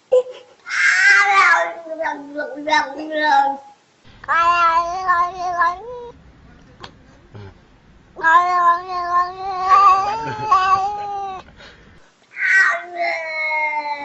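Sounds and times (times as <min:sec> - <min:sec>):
cat yowling: 0:00.7 - 0:03.4, 0:04.3 - 0:06.2, 0:08.2 - 0:11.5, 0:12.4 - 0:14.0.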